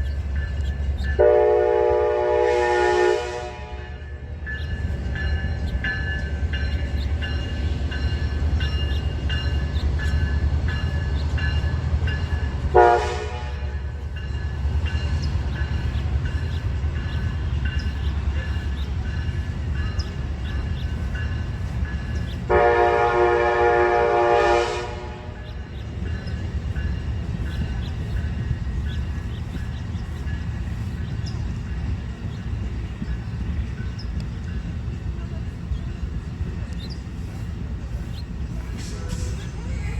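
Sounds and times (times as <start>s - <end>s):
diesel train engine rumble: 0.0s - 39.9s
locomotive air horn blasts: 1.2s - 4.2s, 12.7s - 14.0s, 22.5s - 25.4s.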